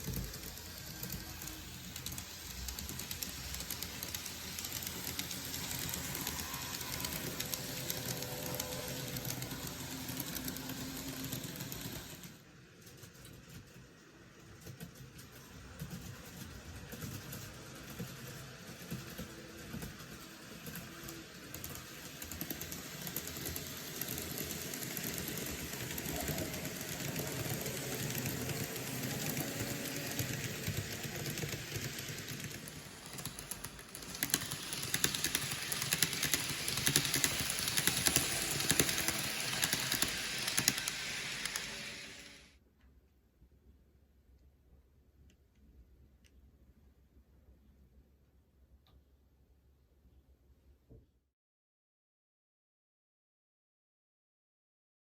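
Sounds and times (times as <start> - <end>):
model train motor whirring: 0.0 - 12.4, 17.6 - 42.5
wheels clicking over rail joints: 20.9 - 42.2.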